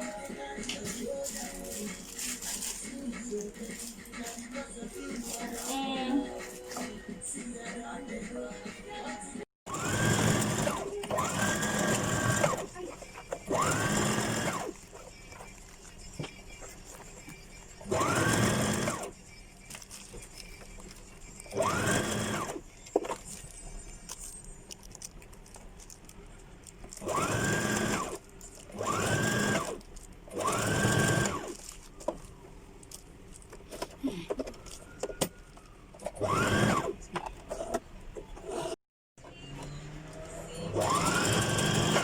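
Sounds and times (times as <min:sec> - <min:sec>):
sewing machine stitching: 0:09.7 - 0:15.6, 0:17.2 - 0:19.2, 0:20.0 - 0:23.2, 0:27.0 - 0:31.6, 0:36.0 - 0:37.8, 0:39.6 - 0:42.0.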